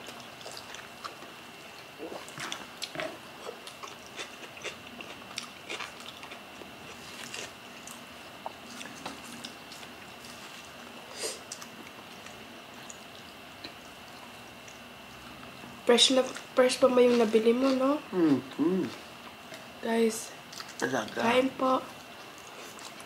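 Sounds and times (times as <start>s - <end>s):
wet chewing clicks and smacks: 11.5s - 15.6s, 20.5s - 20.9s.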